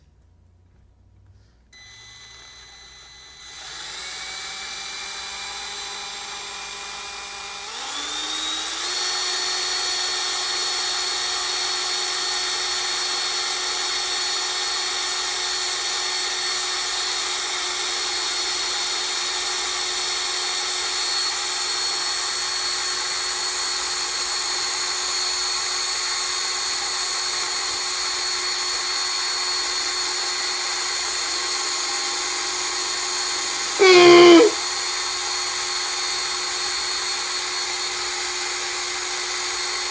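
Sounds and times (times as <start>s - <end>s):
electric drill whining: 1.8s - 24.8s, 33.8s - 34.6s.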